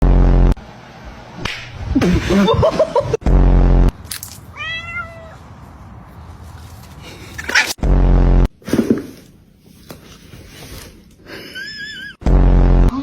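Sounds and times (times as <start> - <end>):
loud flat buzzing blast: 0.0 - 2.4, 3.2 - 4.0, 7.8 - 8.6
cat meowing: 4.5 - 5.4.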